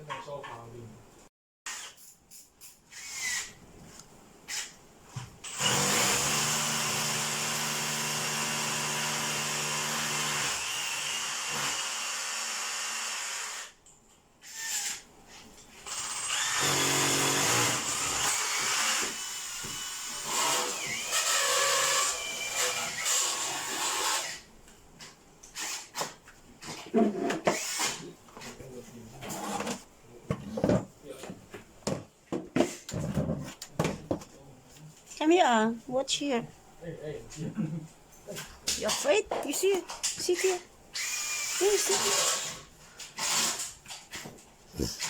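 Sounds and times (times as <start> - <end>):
electric power drill running: 5.4 - 13.8, 15.9 - 24.4, 41.0 - 42.6.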